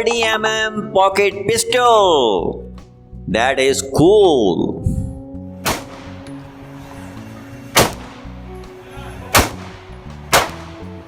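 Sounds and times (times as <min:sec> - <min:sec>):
background music: 0:00.0 - 0:11.0
gunshot sound effects: 0:05.6 - 0:06.2, 0:07.8 - 0:08.2, 0:09.3 - 0:10.8.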